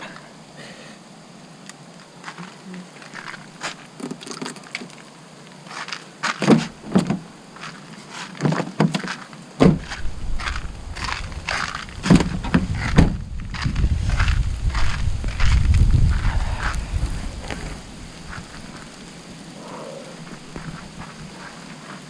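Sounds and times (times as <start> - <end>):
footsteps crunching on ice: 2.2 - 3.9, 7.6 - 19.0, 20.3 - 22.0
low rumble: 10.0 - 18.8.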